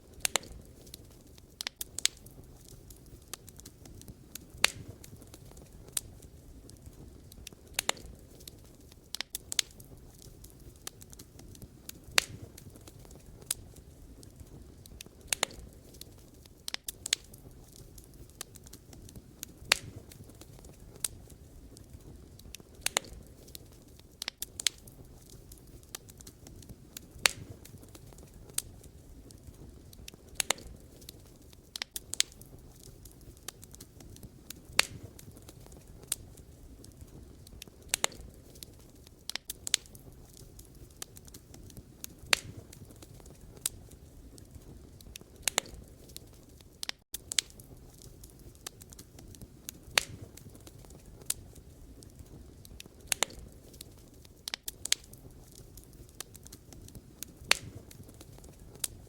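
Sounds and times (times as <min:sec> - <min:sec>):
campfire crackling and popping: 0:00.0 - 0:59.0
low rumble of flames: 0:00.0 - 0:59.0.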